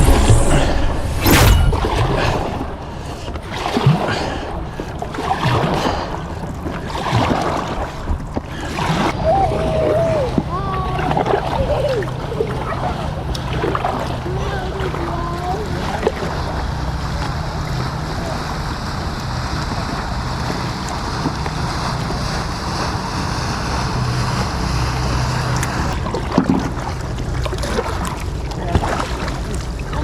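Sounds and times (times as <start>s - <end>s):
wind buffeting microphone: 0.0s - 27.6s
water washing against kayak: 0.0s - 30.0s.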